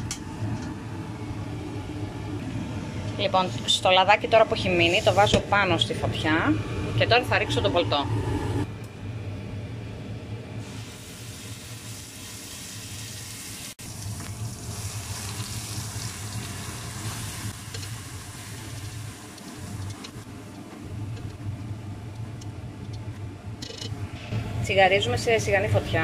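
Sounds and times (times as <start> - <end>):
puree sizzling in hot oil: 10.6 - 20.2.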